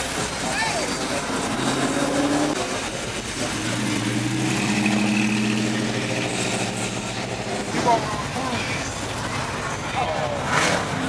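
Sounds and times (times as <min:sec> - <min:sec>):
car engine running: 0:00.0 - 0:11.0
crowd noise: 0:00.0 - 0:11.0.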